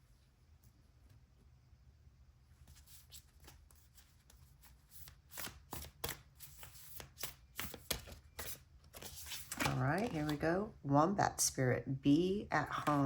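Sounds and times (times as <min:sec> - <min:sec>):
cards being shuffled: 0:02.7 - 0:10.4.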